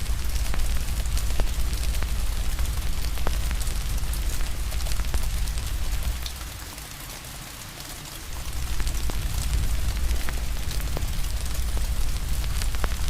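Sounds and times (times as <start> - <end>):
fire crackling and popping: 0.0 - 6.6, 8.3 - 13.0
steady rain hiss: 0.0 - 13.0
low rumble: 8.3 - 13.0.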